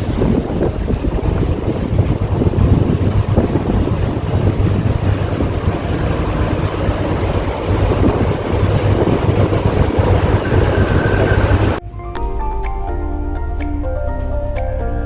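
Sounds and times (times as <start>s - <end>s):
wind rushing over microphone: 0.0s - 11.8s
ship low rumble: 0.0s - 12.6s.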